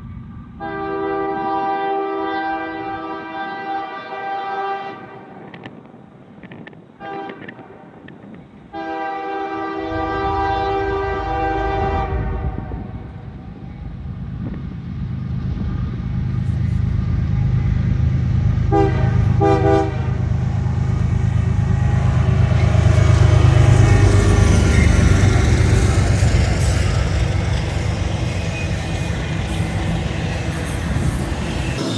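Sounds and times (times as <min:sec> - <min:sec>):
train engine and rail rumble: 0:00.0 - 0:31.9
locomotive horn: 0:00.6 - 0:05.5, 0:07.0 - 0:07.8, 0:08.7 - 0:13.4, 0:18.6 - 0:31.9.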